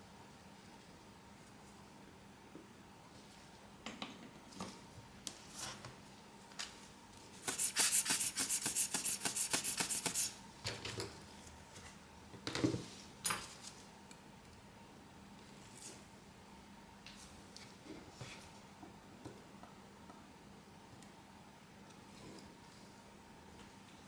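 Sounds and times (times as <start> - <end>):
quick scraping strokes: 7.4 - 10.3
small tools tapping and clicking: 7.4 - 10.3.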